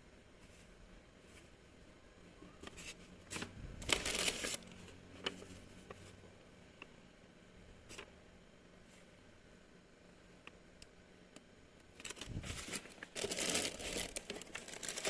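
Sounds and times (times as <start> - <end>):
rustling handling noise: 2.5 - 6.2, 11.9 - 15.0.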